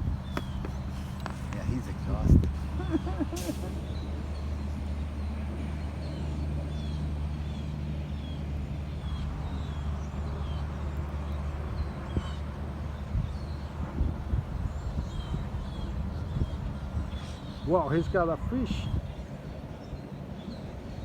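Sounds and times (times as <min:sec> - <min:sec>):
steady low rumble: 0:00.0 - 0:10.3
small bird chirping: 0:00.2 - 0:01.6.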